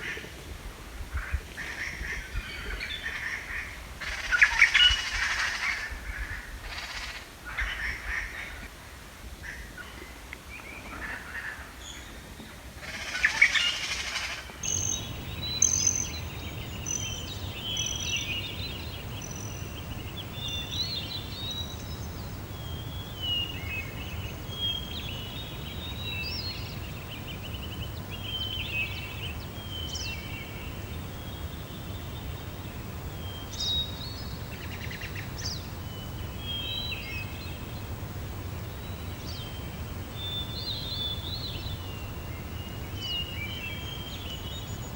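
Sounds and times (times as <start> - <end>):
songbirds chirping and trilling: 13.1 - 44.9.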